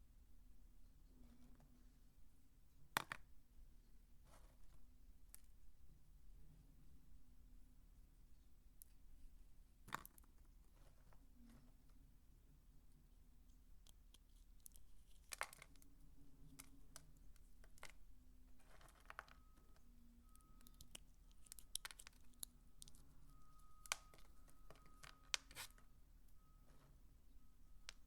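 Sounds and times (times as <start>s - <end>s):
soap shavings crackling: 20.4s - 25.8s.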